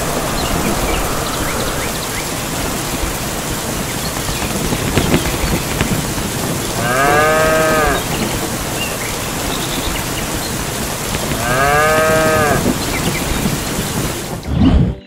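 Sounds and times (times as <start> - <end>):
steady rain: 0.0 - 14.5
cow mooing: 6.8 - 8.0, 11.4 - 12.6.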